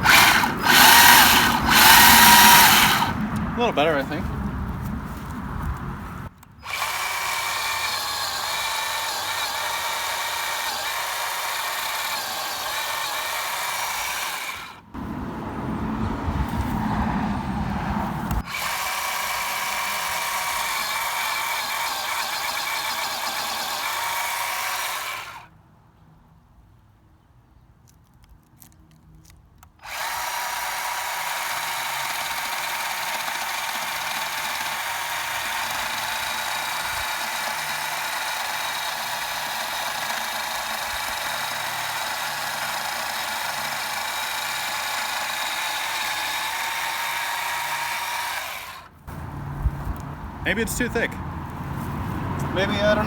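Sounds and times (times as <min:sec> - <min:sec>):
electric chainsaw whining: 0:00.0 - 0:04.2, 0:06.6 - 0:15.2, 0:18.2 - 0:25.5, 0:29.8 - 0:49.4, 0:52.4 - 0:53.0.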